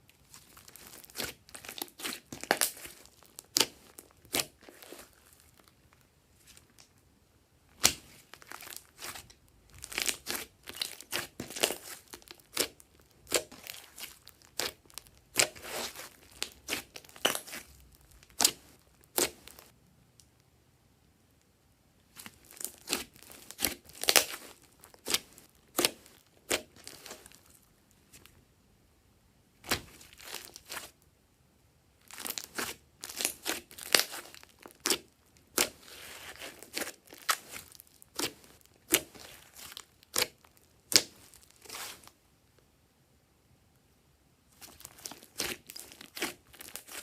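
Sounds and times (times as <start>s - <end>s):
slime popping and crackling: 0.3s - 5.8s, 7.7s - 19.7s, 22.2s - 27.6s, 32.0s - 42.1s, 44.6s - 47.0s.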